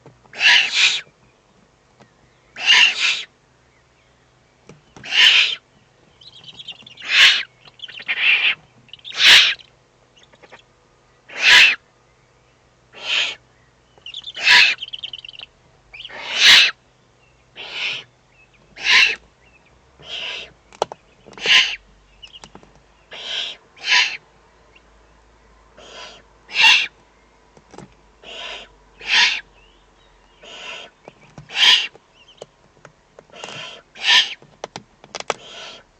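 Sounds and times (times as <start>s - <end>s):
owl chicks hissing begging calls: 0.3s - 1.1s, 2.5s - 3.4s, 5.0s - 11.8s, 12.9s - 16.8s, 17.5s - 18.1s, 18.8s - 19.3s, 20.0s - 20.6s, 21.2s - 24.8s, 25.8s - 27.0s, 28.2s - 29.7s, 30.3s - 32.4s, 33.3s - 34.4s, 35.3s - 35.9s.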